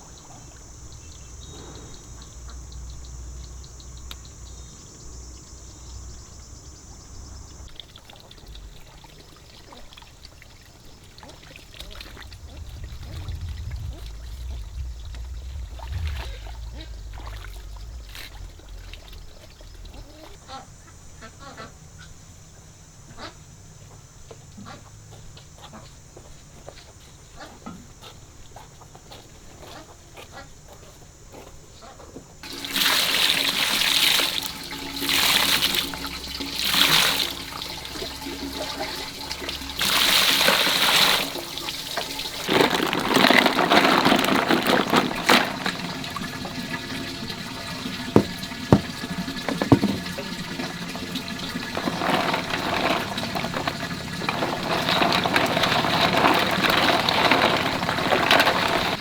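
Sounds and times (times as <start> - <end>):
water splashing and pouring: 7.7 - 20.4, 32.4 - 59.0
sharp knocks: 48.0 - 50.3.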